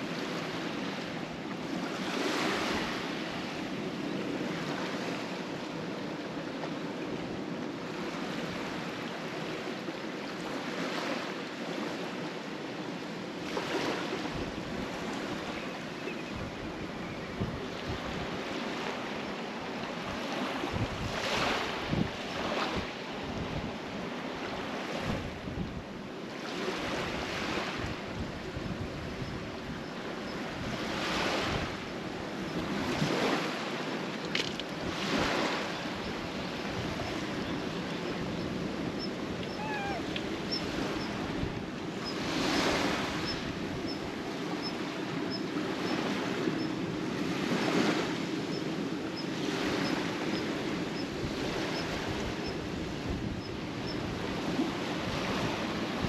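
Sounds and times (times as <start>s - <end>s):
sea waves washing against concrete: 30.5s - 53.4s.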